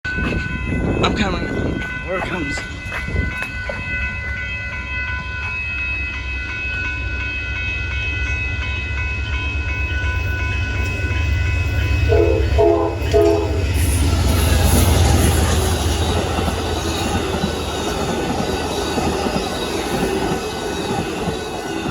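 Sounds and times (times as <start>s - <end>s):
train rumble and wheel noise: 0.0s - 21.9s
locomotive horn short blasts: 12.1s - 13.8s.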